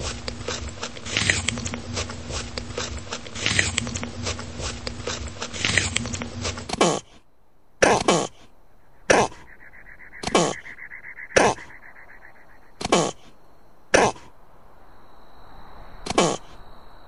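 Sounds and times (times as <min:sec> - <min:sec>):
animal giving harsh calls: 0:00.0 - 0:07.2, 0:07.8 - 0:13.3, 0:13.9 - 0:14.3, 0:16.1 - 0:16.6
dense crackling noise: 0:00.0 - 0:07.3.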